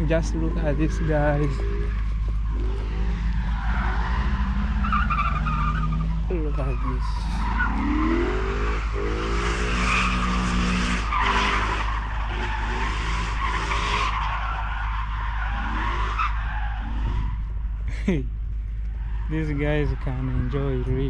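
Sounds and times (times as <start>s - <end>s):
dirt bikes revving: 6.3s - 11.9s.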